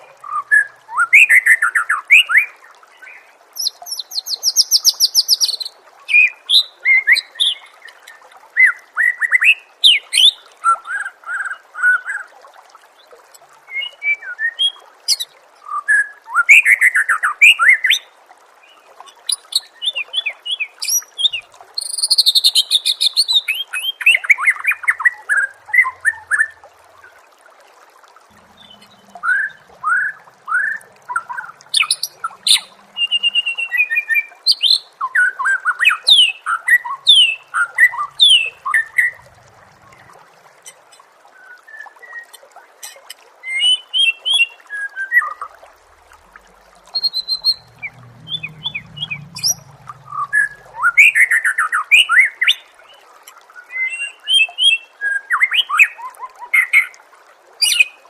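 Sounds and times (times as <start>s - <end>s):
bird singing whistles and trills: 46.9s - 52.1s.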